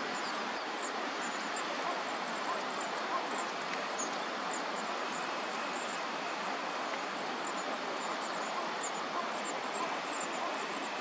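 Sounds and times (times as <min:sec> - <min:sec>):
steady rushing background noise: 0:00.0 - 0:11.0.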